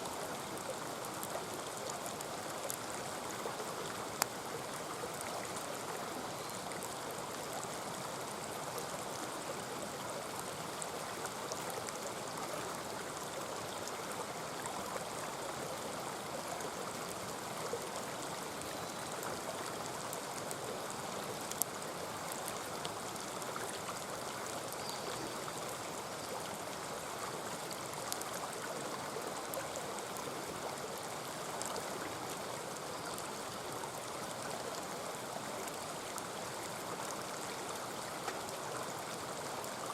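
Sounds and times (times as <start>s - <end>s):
mountain stream running: 0.0s - 39.9s
campfire crackling: 0.2s - 15.3s, 16.2s - 34.5s.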